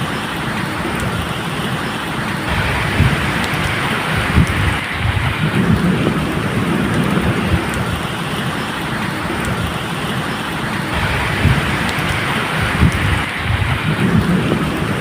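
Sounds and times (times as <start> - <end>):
steady rain hiss: 0.0 - 15.0
low thunder rumbling: 2.4 - 10.1, 10.7 - 15.0.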